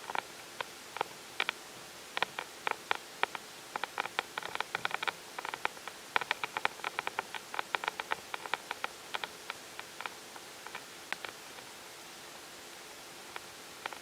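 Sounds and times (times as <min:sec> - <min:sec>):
steady hiss: 0:00.0 - 0:14.0
sharp clicks and taps: 0:02.2 - 0:11.7.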